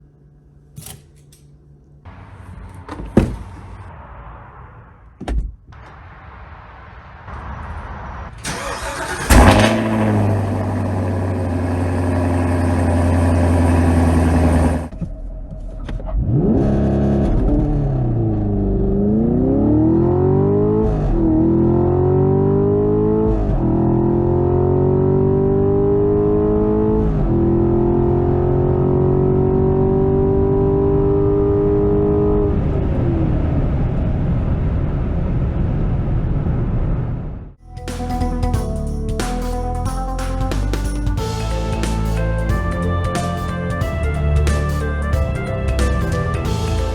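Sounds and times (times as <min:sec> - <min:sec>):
car engine revving: 0:05.9 - 0:14.9, 0:16.0 - 0:33.5
engine accelerating through upshifts: 0:08.4 - 0:14.9, 0:15.9 - 0:34.8.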